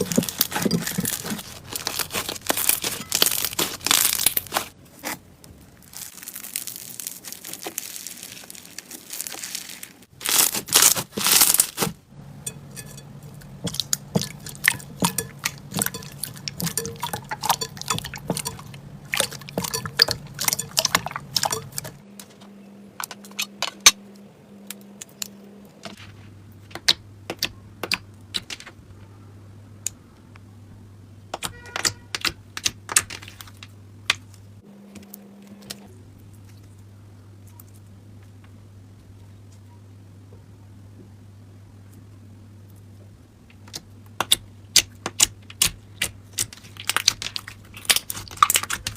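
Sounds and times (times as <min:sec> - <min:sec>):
slime squishing and popping: 0:00.0 - 0:05.2, 0:05.8 - 0:11.9, 0:43.7 - 0:48.9.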